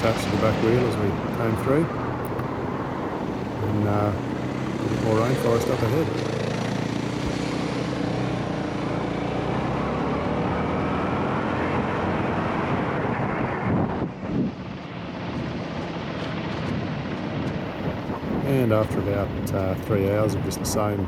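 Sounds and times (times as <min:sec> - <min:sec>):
wind buffeting microphone: 0:00.0 - 0:07.8, 0:12.4 - 0:21.0
dirt bike engine running: 0:00.0 - 0:09.5.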